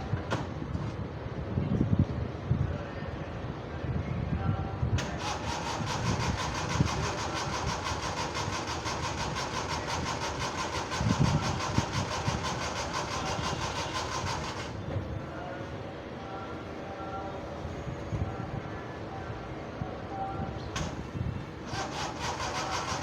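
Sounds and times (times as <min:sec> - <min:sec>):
car engine cranking: 0:05.0 - 0:14.8, 0:20.8 - 0:23.0.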